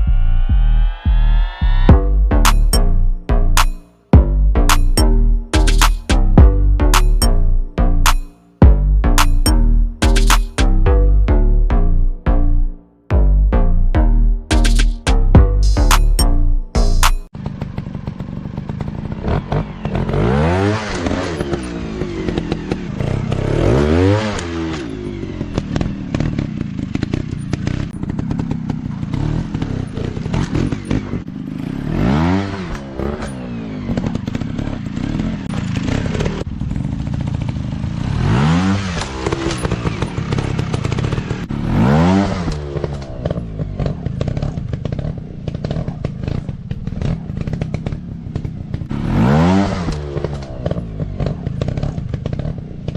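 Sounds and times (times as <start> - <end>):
dirt bike engines revving: 16.8 - 52.9.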